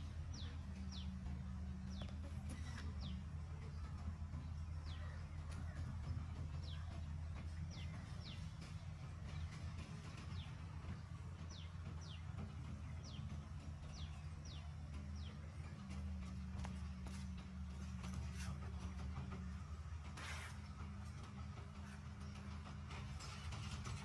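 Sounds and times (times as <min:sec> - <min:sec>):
small birds chirping: 0:00.0 - 0:19.3
steady low hum: 0:00.0 - 0:24.0.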